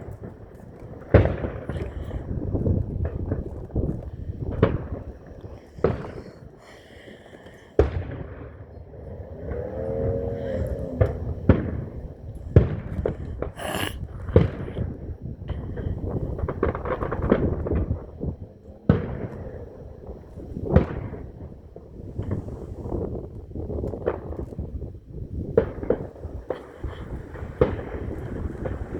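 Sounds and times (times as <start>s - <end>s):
firework shells booming: 0.0s - 10.0s, 10.6s - 18.3s, 25.5s - 28.9s.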